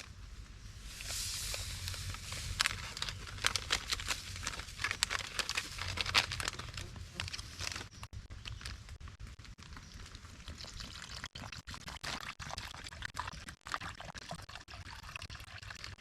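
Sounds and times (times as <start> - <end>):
sharp crackles: 0.9 - 10.9
plastic packaging crinkling: 1.0 - 10.3.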